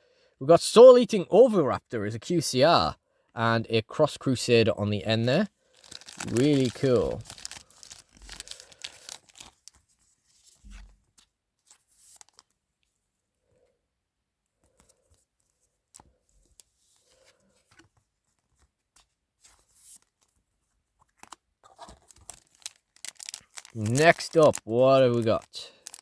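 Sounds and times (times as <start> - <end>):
foil wrapper rustling and tearing: 5.6 - 9.9, 12.1 - 12.6, 21.1 - 26.0.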